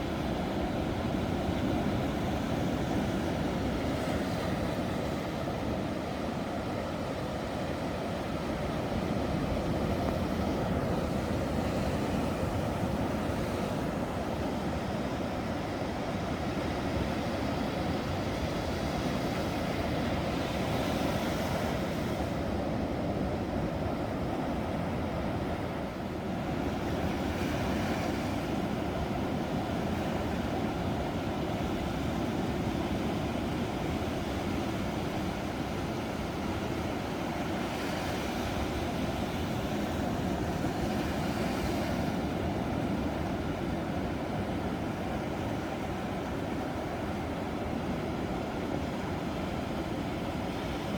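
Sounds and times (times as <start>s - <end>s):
ocean waves rumbling surf: 0.0s - 50.9s.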